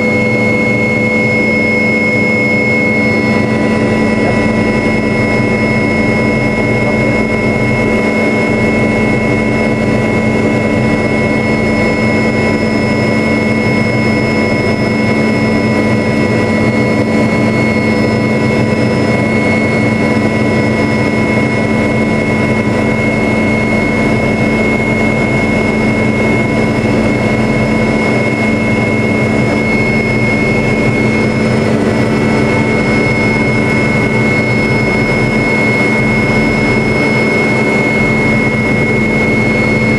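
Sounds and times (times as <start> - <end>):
helicopter engine and rotors drone: 0.0 - 39.9
turbine whine: 0.0 - 39.9.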